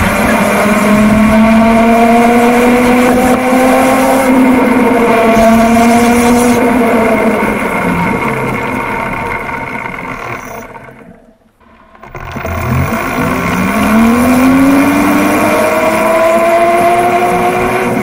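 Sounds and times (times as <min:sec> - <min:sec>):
electric motor and chain drive whining: 0:04.9 - 0:18.0.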